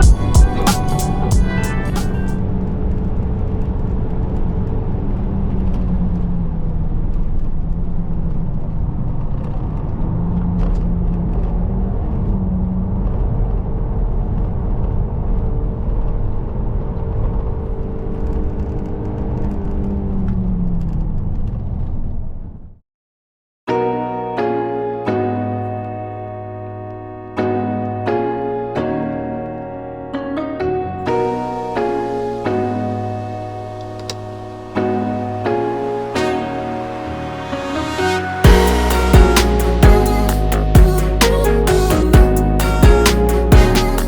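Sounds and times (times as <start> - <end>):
car engine drone: 36.9 - 44.0.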